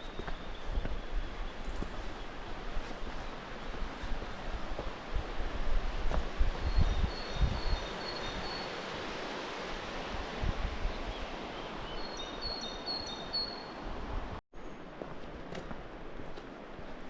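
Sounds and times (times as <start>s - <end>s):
wind buffeting microphone: 0.0s - 8.6s, 9.2s - 12.5s.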